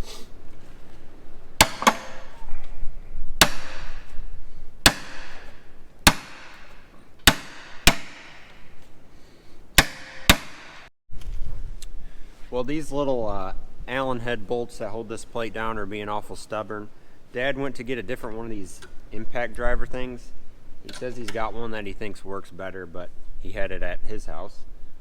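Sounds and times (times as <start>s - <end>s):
hammer striking impact driver: 1.6s - 2.4s, 4.8s - 8.7s, 9.8s - 10.9s.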